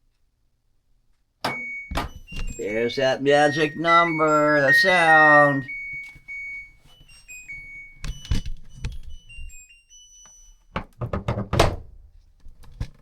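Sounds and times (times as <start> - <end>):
washing machine chime: 1.5 - 11.2.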